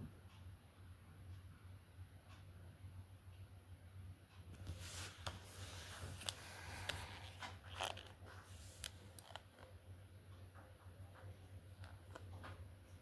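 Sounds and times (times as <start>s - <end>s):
low steady hum: 0.0s - 13.0s
small objects clicking and scraping: 4.6s - 9.8s.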